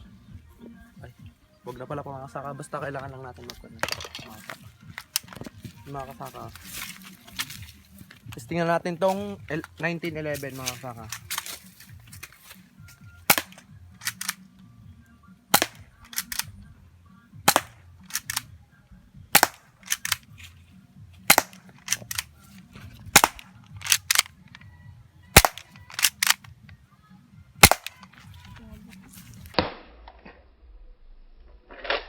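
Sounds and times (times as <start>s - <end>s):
airsoft pistol shots: 13.3s - 14.4s, 15.5s - 16.5s, 17.5s - 18.4s, 19.3s - 20.2s, 21.3s - 22.2s, 23.1s - 24.3s, 25.4s - 26.4s, 27.6s - 28.1s, 29.5s - 30.0s.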